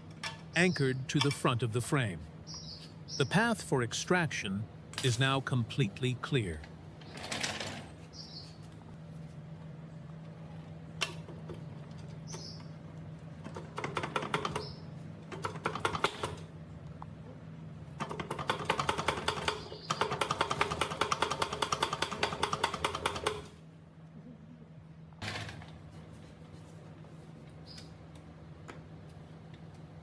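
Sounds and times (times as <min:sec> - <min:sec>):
low steady hum: 0:00.0 - 0:07.1.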